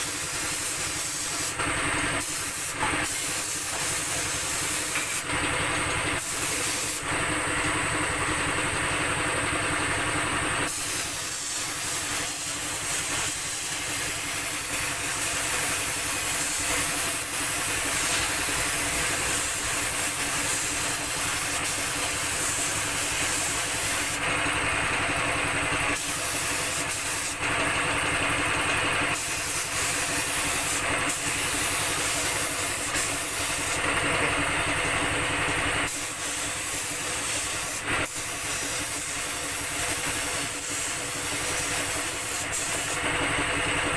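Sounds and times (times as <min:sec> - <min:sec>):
paint spray gun hissing: 0:02.2 - 0:05.3, 0:10.6 - 0:24.3, 0:29.0 - 0:33.8, 0:35.9 - 0:43.0.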